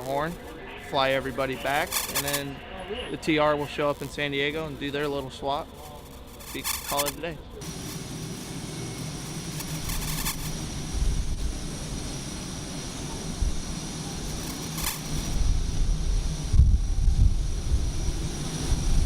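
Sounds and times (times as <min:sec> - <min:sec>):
aircraft engine roar: 0:07.2 - 0:19.0
wind buffeting microphone: 0:09.7 - 0:14.5, 0:15.2 - 0:19.0.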